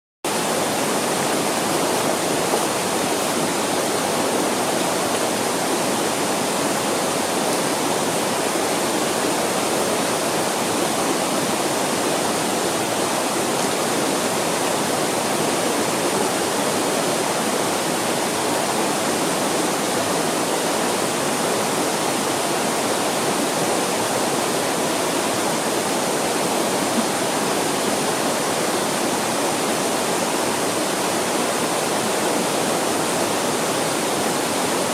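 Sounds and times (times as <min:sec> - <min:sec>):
mountain stream rushing: 0:00.3 - 0:34.9.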